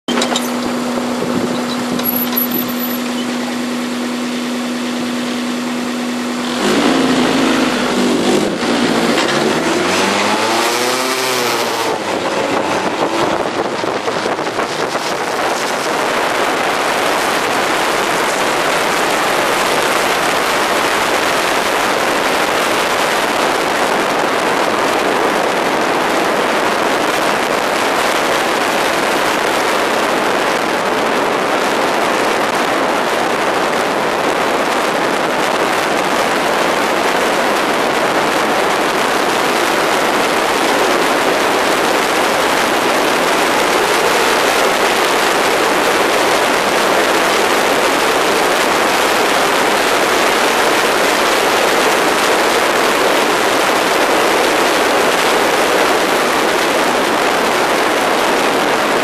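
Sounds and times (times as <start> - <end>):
car engine accelerating: 0.0 - 32.0
road noise at speed: 0.0 - 59.0.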